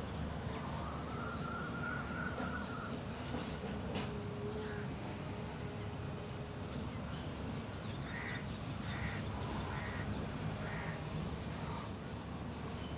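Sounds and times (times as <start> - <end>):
steady low background noise: 0.0 - 12.9
bird calling: 1.4 - 3.6.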